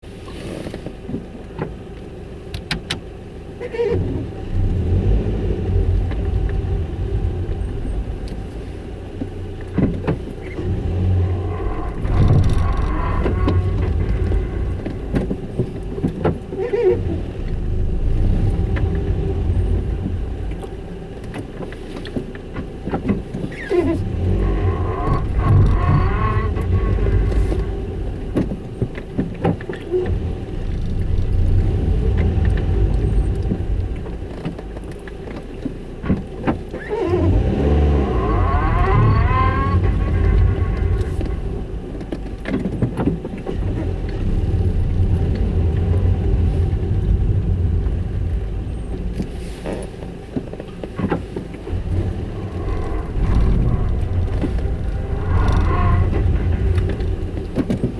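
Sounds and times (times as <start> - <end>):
low car rumble: 0.0 - 57.9
car grinding noise: 3.6 - 57.9
rising and falling whine: 51.7 - 57.9.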